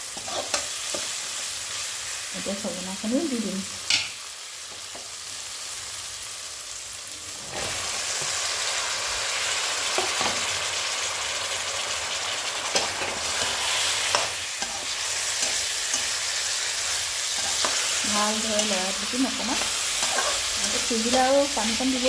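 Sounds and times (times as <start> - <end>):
food sizzling in hot oil: 0.0 - 22.0
spatula scraping pan: 0.1 - 1.2, 12.7 - 22.0.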